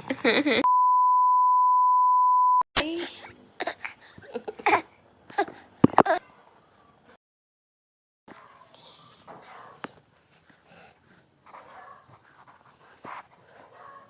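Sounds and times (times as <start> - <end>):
steady beep tone: 0.6 - 2.6.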